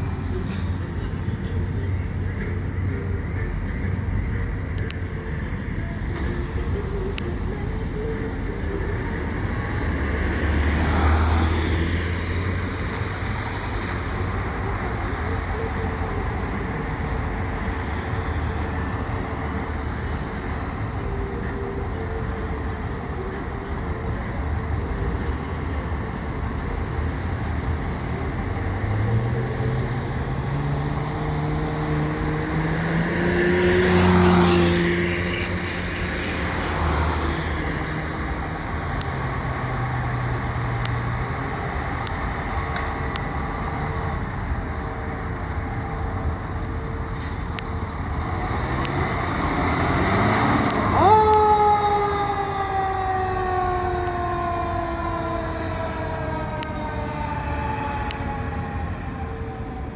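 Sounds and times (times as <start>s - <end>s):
fire engine diesel engine: 0.0s - 59.9s
steady street traffic: 0.0s - 59.9s
vehicle passing: 4.8s - 15.0s, 28.8s - 59.9s
engine revving up: 47.2s - 51.5s.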